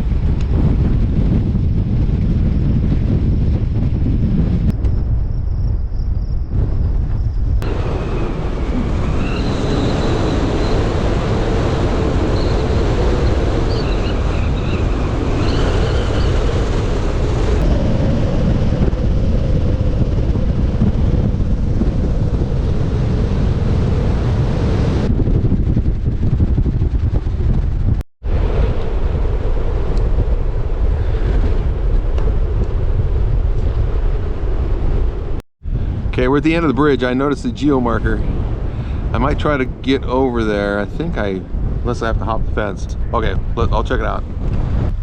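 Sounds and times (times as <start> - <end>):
wind buffeting microphone: 0.0 - 45.0
faint wavering high whistles: 7.9 - 11.0.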